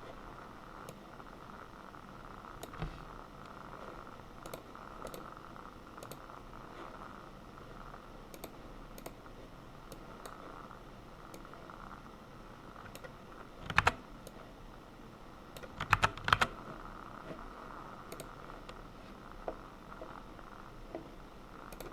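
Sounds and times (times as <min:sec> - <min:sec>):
faint steady hum: 0:00.0 - 0:21.9
computer keyboard keys clicking: 0:06.0 - 0:06.2, 0:08.3 - 0:09.2, 0:12.9 - 0:14.4, 0:15.5 - 0:16.6.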